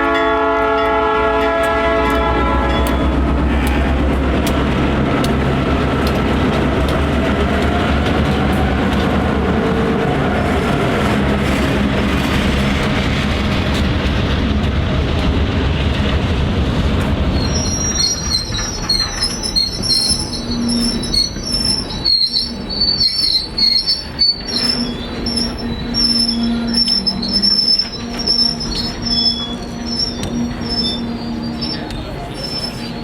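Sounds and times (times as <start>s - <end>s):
diesel locomotive rumble: 0.0s - 33.0s
train wheels squealing on rails: 17.3s - 33.0s.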